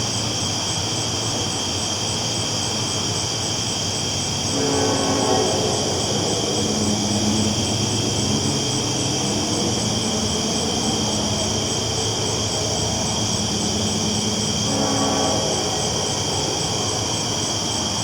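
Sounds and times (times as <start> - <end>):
train rumbling on tracks: 0.0 - 18.0.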